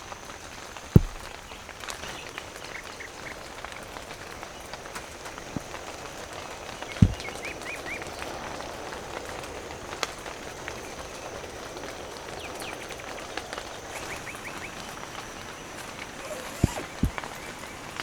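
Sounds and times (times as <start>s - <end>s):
steady rain hiss: 0.0s - 18.0s
dull thump: 1.0s - 2.3s, 6.9s - 7.5s, 16.2s - 17.5s.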